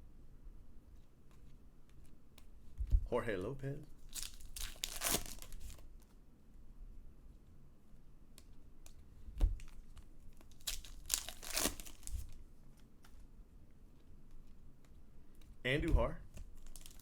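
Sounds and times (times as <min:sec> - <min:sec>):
card pack wrappers crinkling: 0:04.0 - 0:06.2, 0:09.6 - 0:12.4, 0:16.4 - 0:17.0
cards being handled: 0:04.0 - 0:06.2, 0:08.4 - 0:13.3.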